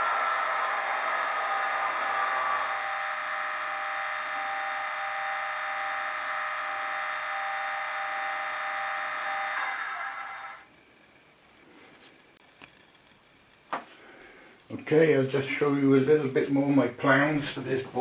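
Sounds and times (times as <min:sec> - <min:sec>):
tinny model locomotive engine drone: 0:00.0 - 0:11.3.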